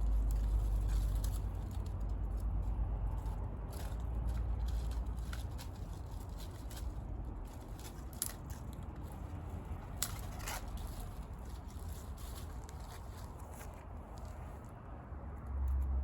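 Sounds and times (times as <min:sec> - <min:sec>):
wood bonfire crackling: 0:00.0 - 0:14.6
low steady rumble: 0:00.0 - 0:16.0.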